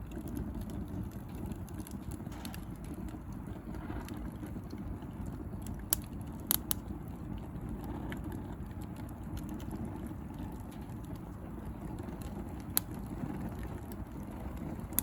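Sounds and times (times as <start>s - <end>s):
sharp pops from fire: 0.0s - 7.1s, 10.5s - 15.0s
bonfire crackling: 0.0s - 15.0s.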